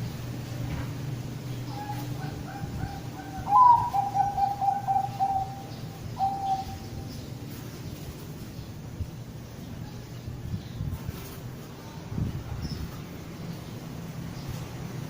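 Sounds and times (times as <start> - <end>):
dove cooing: 1.6 - 7.0.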